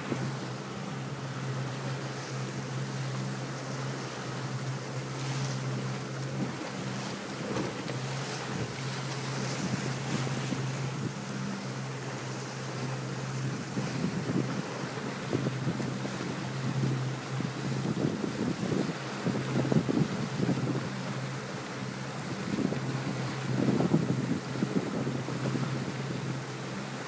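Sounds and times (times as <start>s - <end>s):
motorboat engine drone: 0.0s - 27.0s
water rushing along hull: 0.0s - 27.0s
wind buffeting microphone: 8.4s - 11.4s, 13.1s - 21.2s, 22.1s - 26.4s.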